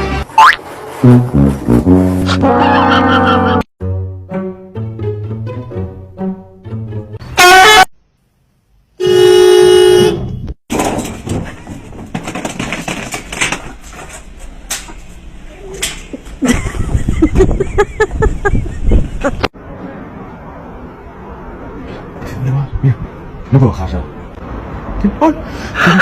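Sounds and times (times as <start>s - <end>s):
loud horn-like honks: 7.3s - 7.9s, 9.0s - 10.5s
knocks and clatter: 10.7s - 15.2s.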